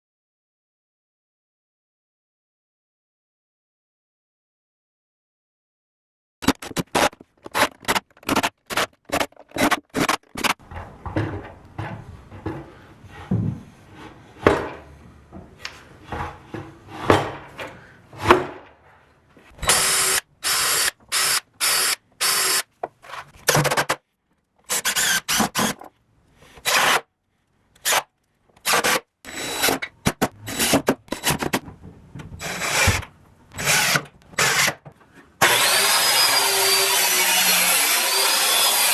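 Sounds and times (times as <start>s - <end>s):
drilling wood: 19.6s - 22.6s, 32.4s - 33.0s, 35.4s - 38.9s
sawing wood: 35.4s - 38.9s.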